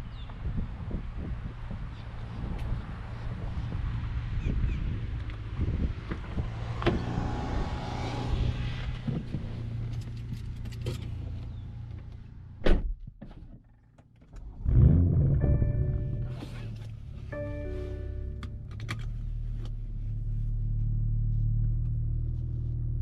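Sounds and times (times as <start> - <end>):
car engine starting and revving: 2.6 - 12.0, 14.4 - 23.0
sharp thunk: 12.6 - 13.0
chime tones: 17.4 - 18.4.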